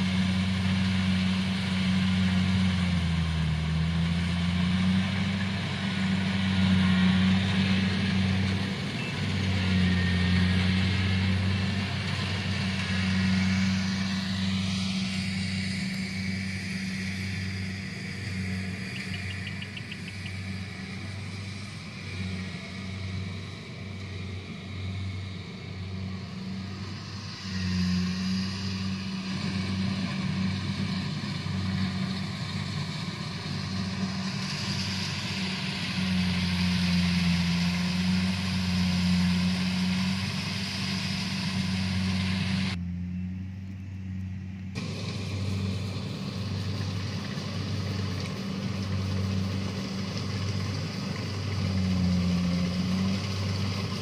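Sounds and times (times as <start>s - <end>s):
harvester engine pulsing hum: 0.0s - 54.0s
mechanical rush of machine working: 44.8s - 54.0s.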